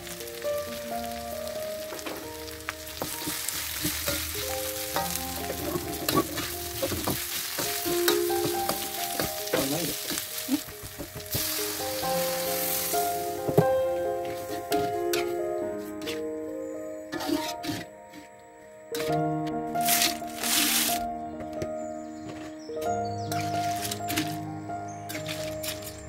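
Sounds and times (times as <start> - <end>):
water poured into hot pan: 0.0 - 13.6
spice paste sizzling in wok: 0.0 - 16.3, 17.1 - 18.3, 19.8 - 21.0, 23.2 - 24.4, 25.0 - 26.0
metal spatula scraping pan: 2.9 - 10.3, 14.2 - 16.2, 17.1 - 18.3, 25.1 - 26.0.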